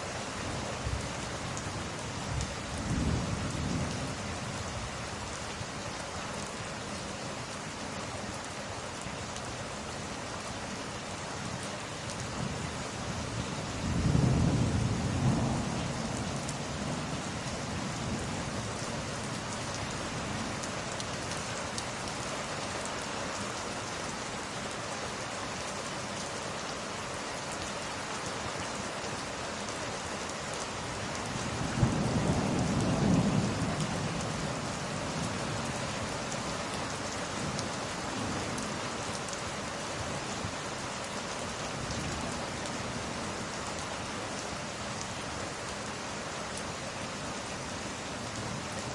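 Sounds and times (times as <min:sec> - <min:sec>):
steady rain falling: 0:00.0 - 0:48.9
thunder rumbling: 0:13.9 - 0:17.1, 0:31.5 - 0:35.7.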